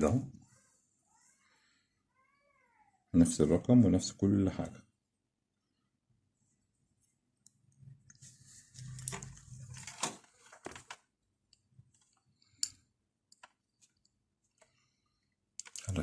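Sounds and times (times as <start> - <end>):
clicks and rustling of handling: 7.4 - 14.8, 15.6 - 16.0.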